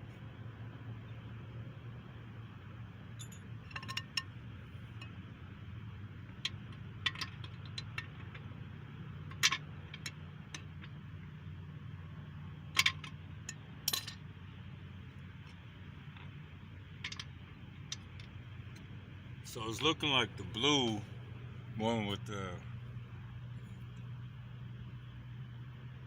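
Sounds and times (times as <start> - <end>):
steady low hum: 0.0 - 26.0
metal pieces clinking: 9.3 - 10.9, 12.8 - 14.2, 17.0 - 17.3.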